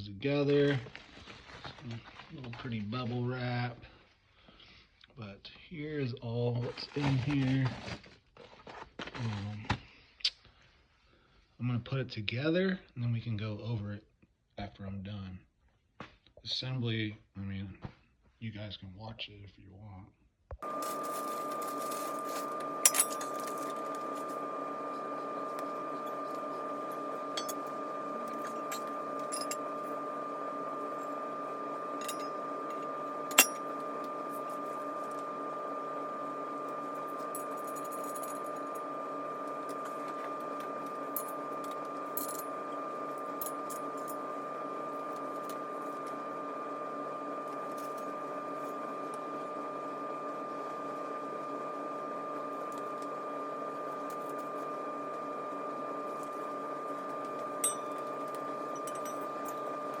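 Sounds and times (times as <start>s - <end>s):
steady hum: 20.6s - 60.0s.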